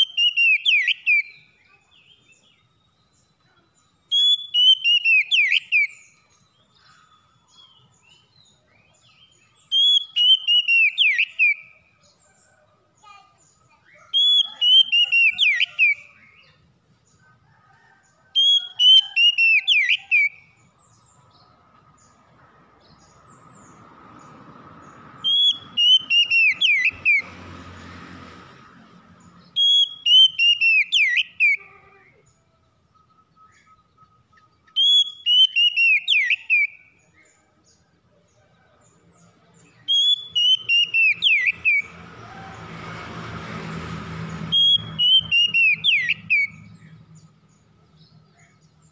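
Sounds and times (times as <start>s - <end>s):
songbird whistling: 0.0s - 12.0s, 13.7s - 16.6s, 18.3s - 20.6s, 25.2s - 27.3s, 29.5s - 31.6s, 32.9s - 37.0s, 39.8s - 42.0s, 44.5s - 46.7s.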